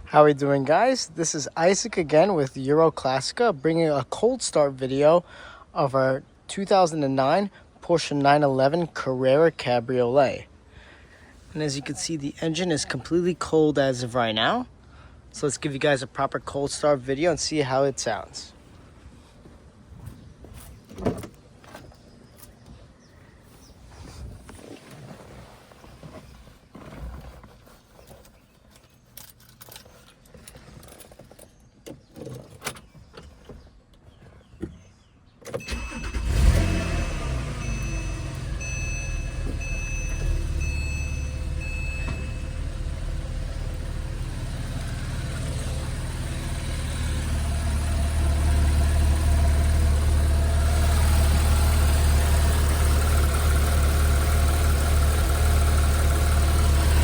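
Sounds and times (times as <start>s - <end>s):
car engine cold start: 35.5s - 57.0s
car engine fast idle: 35.6s - 57.0s.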